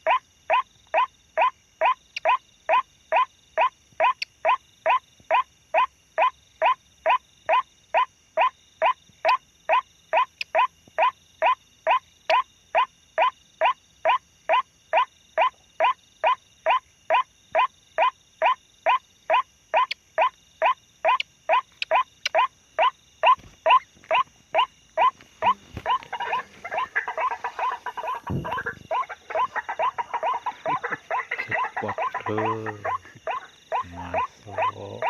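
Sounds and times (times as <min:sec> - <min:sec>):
waterhen calls: 0:19.8 - 0:35.0.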